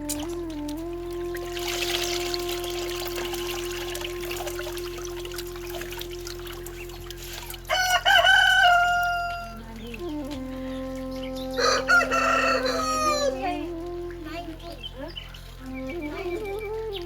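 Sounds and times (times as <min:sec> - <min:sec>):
rooster crowing: 0:07.7 - 0:09.6, 0:11.6 - 0:13.6.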